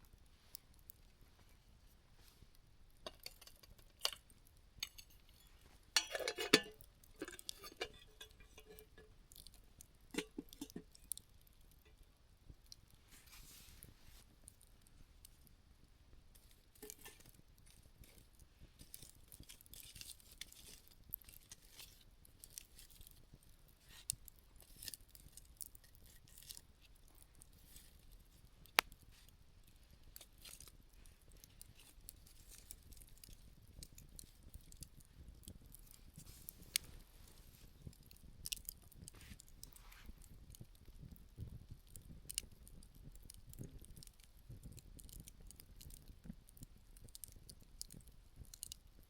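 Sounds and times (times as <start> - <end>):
campfire crackling: 0.0 - 49.0
sharp snap of fire: 28.7 - 29.0.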